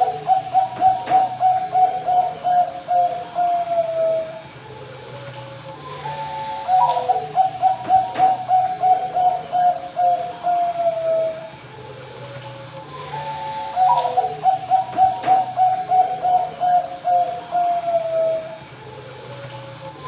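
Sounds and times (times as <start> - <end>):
dove cooing: 0.0 - 20.0
steady low hum: 0.0 - 20.0.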